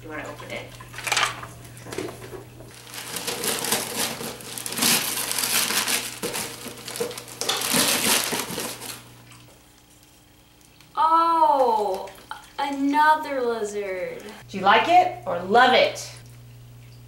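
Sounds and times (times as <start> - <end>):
paper packaging crinkling: 1.0 - 9.1.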